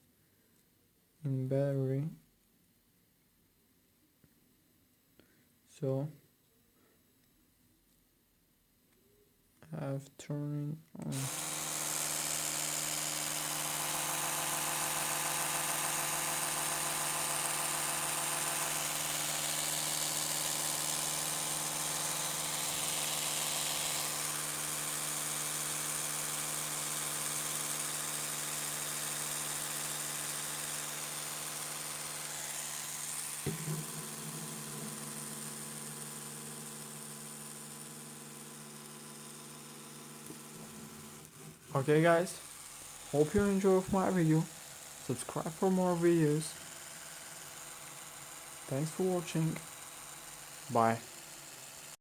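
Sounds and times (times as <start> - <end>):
electric toothbrush buzzing: 11.1 - 52.0
knock: 33.5 - 34.1.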